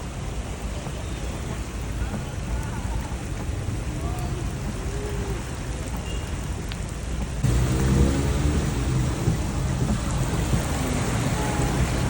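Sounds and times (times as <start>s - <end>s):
heavy rain pouring: 0.0s - 12.0s
low rumble: 7.4s - 12.0s.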